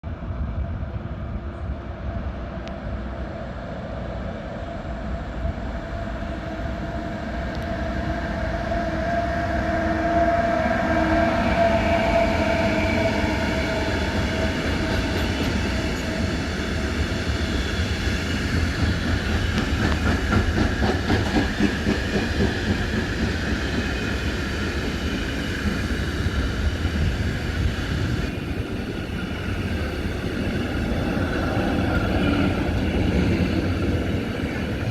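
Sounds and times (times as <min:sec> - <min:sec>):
train rumbling past: 0:00.1 - 0:34.9.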